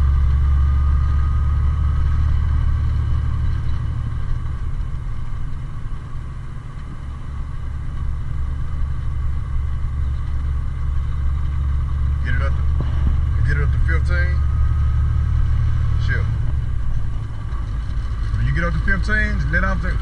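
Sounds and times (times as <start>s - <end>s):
truck diesel engine droning: 0.0s - 20.0s.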